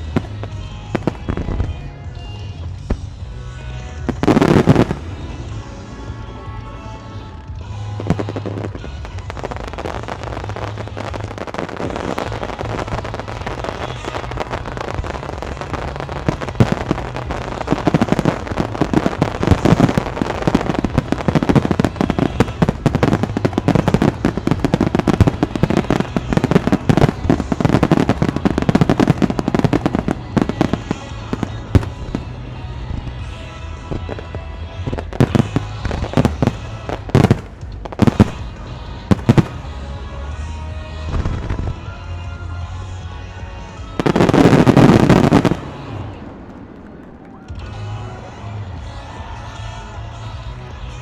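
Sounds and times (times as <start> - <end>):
fireworks bursting and crackling: 0.0 - 42.4, 43.1 - 51.0
background music: 0.0 - 51.0.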